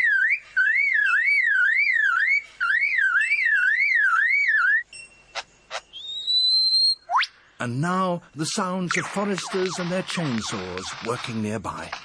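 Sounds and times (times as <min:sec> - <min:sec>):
bird mimicking a car alarm: 0:00.0 - 0:04.9.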